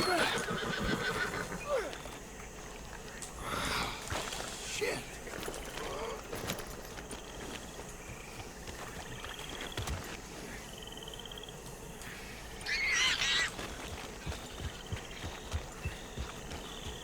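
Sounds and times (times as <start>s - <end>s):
loud animal call: 12.6s - 13.8s.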